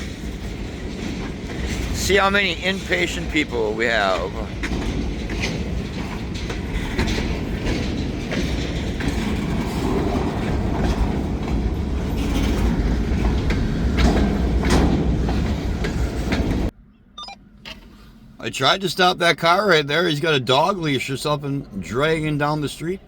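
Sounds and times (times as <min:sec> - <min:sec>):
train rumbling past: 0:00.0 - 0:16.8, 0:18.2 - 0:23.0
wheels clicking over rail joints: 0:00.0 - 0:16.8.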